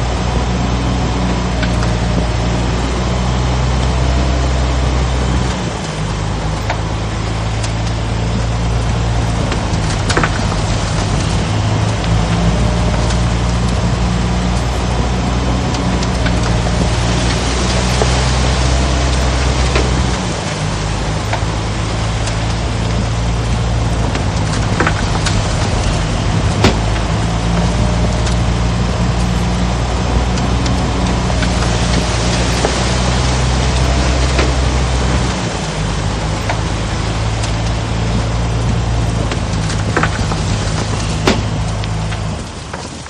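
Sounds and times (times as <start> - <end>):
heavy diesel engine running: 0.0 - 43.0.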